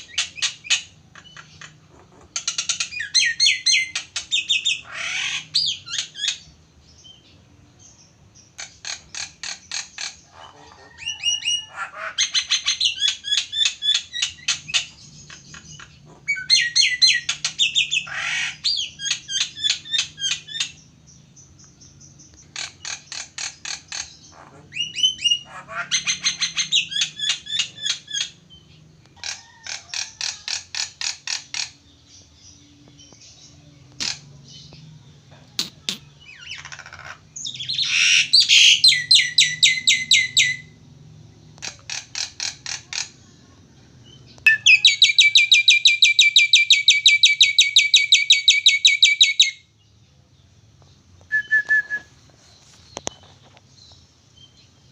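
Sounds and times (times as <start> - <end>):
starling chattering song: 0.0 - 49.6.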